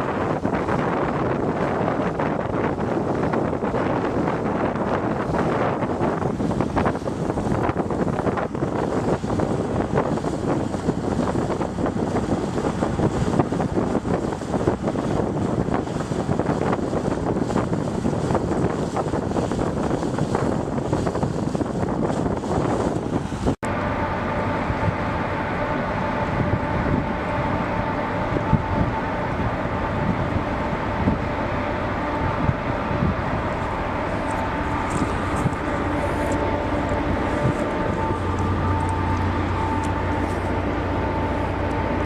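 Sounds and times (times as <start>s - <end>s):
rushing wind-like noise: 0.0s - 42.0s
steady mechanical hum: 0.0s - 42.0s.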